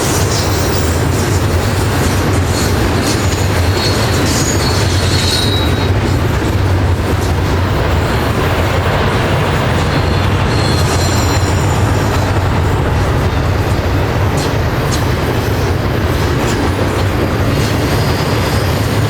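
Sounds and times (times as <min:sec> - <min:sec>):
train wheels rumbling on rail: 0:00.0 - 0:19.0
high-pitched wheel squeals: 0:02.6 - 0:06.2, 0:09.8 - 0:13.6, 0:17.4 - 0:19.0.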